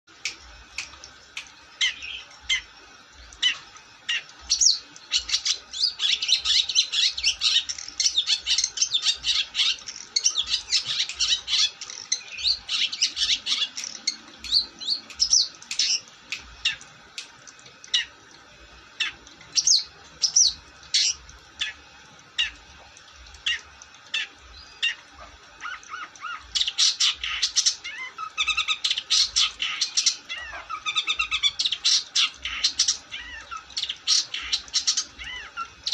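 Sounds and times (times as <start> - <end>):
bird chirps and squawks: 23.4 - 35.9.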